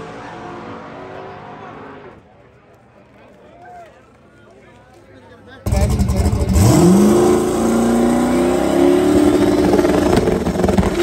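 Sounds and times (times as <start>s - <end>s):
race engine revving: 5.7s - 11.0s.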